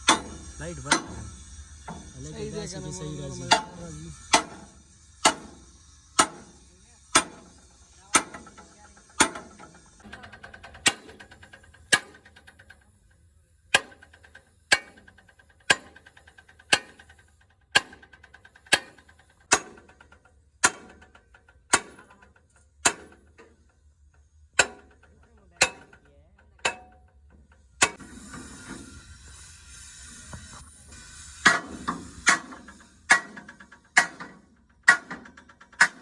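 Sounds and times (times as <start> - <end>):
hammer striking metal: 0.0 - 2.2, 3.1 - 12.6, 13.7 - 14.1, 17.8 - 23.6, 24.6 - 27.1, 27.8 - 28.8, 31.4 - 36.0.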